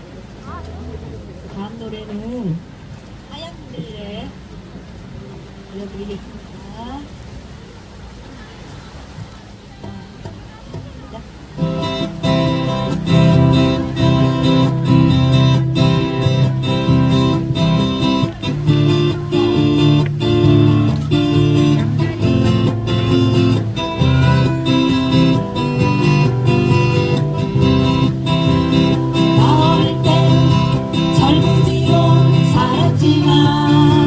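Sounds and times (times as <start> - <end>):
acoustic guitars strumming chords: 0.0 - 2.8, 11.5 - 34.0.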